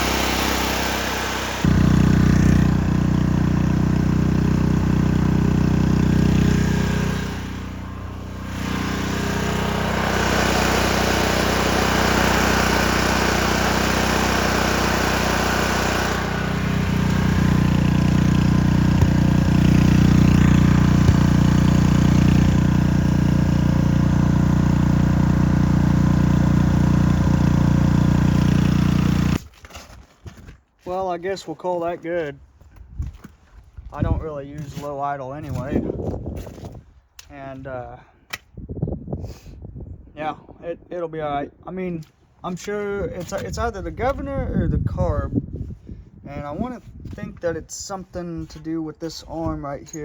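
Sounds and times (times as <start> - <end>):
welder gasoline engine running: 0.0 - 29.5.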